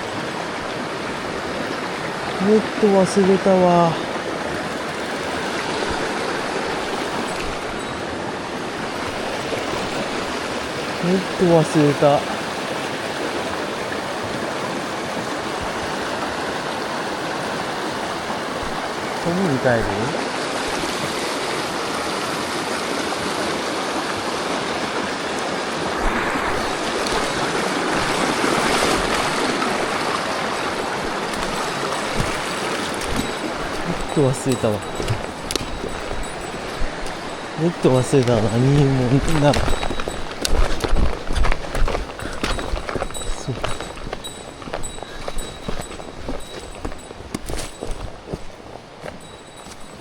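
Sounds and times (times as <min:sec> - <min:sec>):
stream water rushing: 0:00.0 - 0:50.0.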